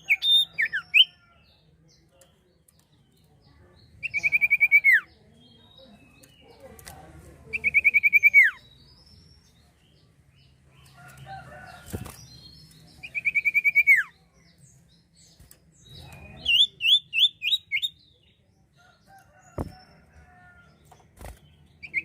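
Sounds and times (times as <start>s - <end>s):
songbird singing fast trills: 3.8s - 6.5s, 7.4s - 18.4s.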